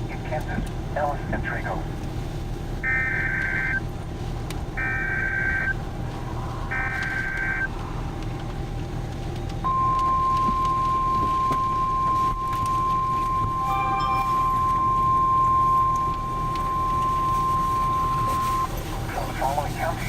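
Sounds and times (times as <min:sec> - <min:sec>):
steady low rumble: 0:00.0 - 0:20.0
steady alert tone: 0:13.6 - 0:17.0.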